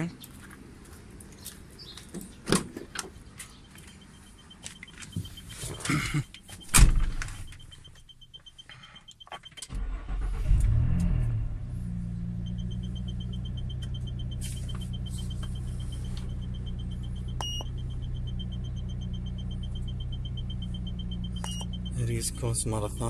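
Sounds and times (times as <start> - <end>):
car engine cranking and idling: 0.3 - 23.0
dashboard warning chime beeping: 3.0 - 10.3, 11.8 - 23.0
loud thump: 6.7 - 7.4.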